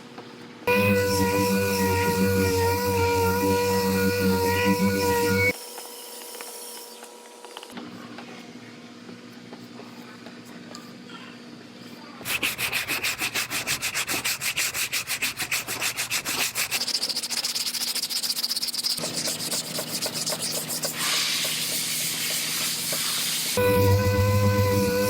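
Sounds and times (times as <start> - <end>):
steady pitched hum: 0.7 - 5.6
sandpaper rubbing on car panel: 12.2 - 23.6.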